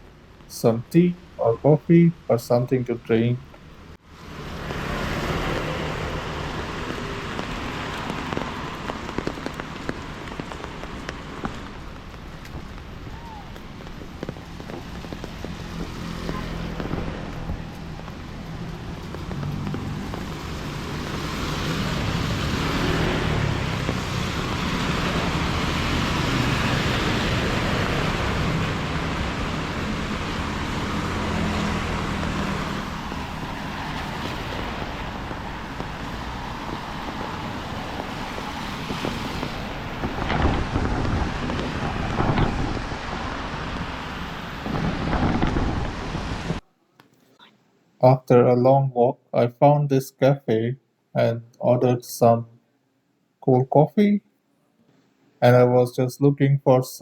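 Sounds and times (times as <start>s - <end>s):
traffic on a wet street: 0.0s - 46.6s.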